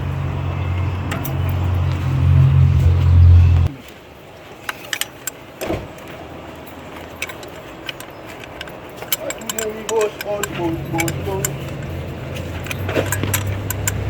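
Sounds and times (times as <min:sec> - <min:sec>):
low mechanical drone: 0:00.0 - 0:03.8, 0:10.2 - 0:14.0
light metallic clicks and taps: 0:04.7 - 0:14.0.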